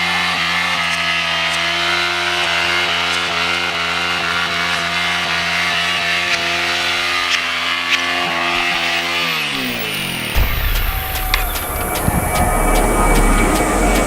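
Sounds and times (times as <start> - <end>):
low wind rush: 10.4 - 14.0.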